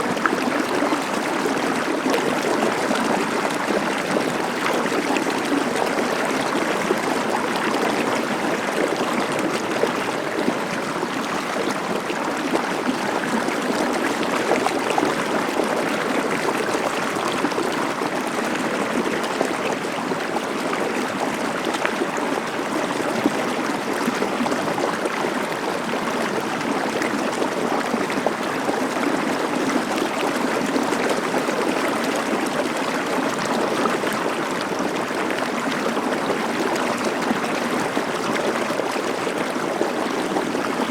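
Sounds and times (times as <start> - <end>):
stream of water flowing: 0.0 - 40.9.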